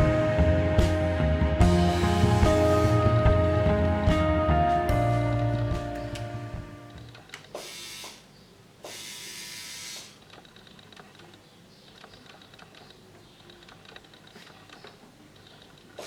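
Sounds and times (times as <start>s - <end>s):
quiet clicking and tapping: 10.2s - 16.0s.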